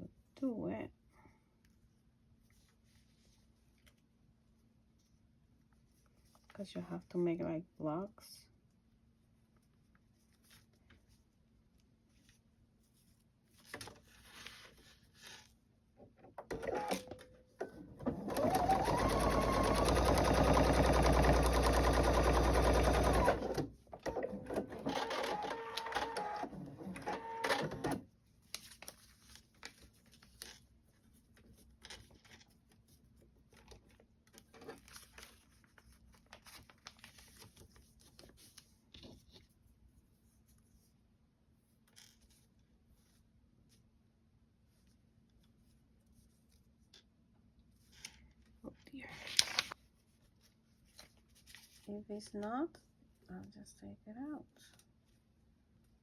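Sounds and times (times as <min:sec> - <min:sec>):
fabric and paper handled: 0:01.6 - 0:07.2, 0:08.6 - 0:15.9, 0:28.1 - 0:44.0, 0:44.6 - 0:52.7
sewing machine stitching: 0:16.4 - 0:28.0.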